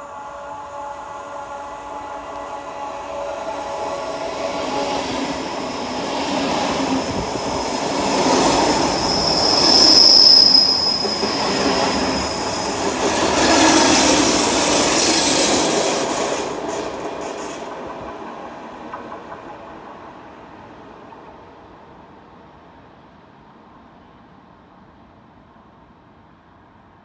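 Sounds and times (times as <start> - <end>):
electric train passing: 0.0 - 26.9
high wheel squeal: 7.0 - 15.8.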